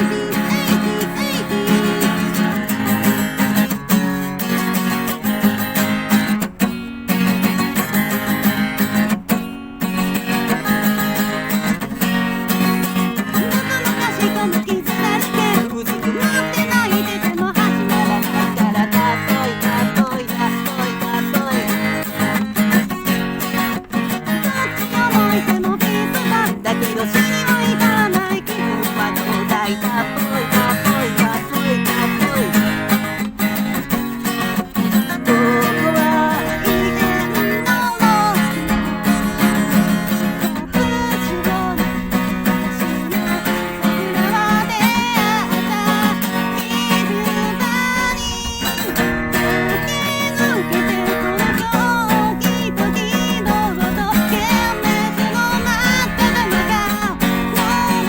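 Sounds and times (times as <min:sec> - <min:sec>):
man singing in falsetto: 0:00.0 - 0:04.6, 0:10.2 - 0:22.9, 0:23.6 - 0:33.5, 0:34.8 - 0:58.0
acoustic guitar strumming: 0:00.0 - 0:58.0.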